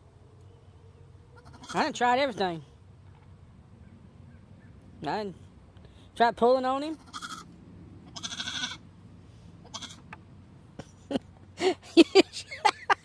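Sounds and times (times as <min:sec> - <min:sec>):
goat bleating: 0:01.4 - 0:02.0, 0:06.9 - 0:07.5, 0:08.1 - 0:08.8, 0:09.6 - 0:10.1.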